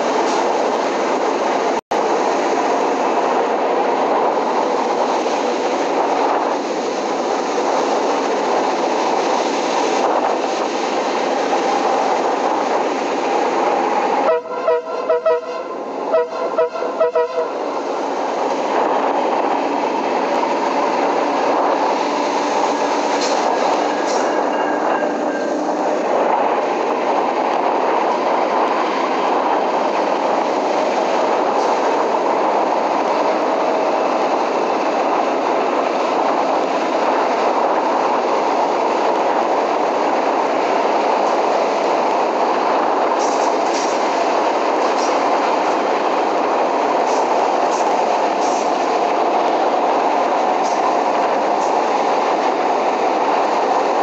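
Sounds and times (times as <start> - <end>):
train wheels rumbling on rail: 0.0 - 54.0
train horn short blasts: 14.2 - 17.6.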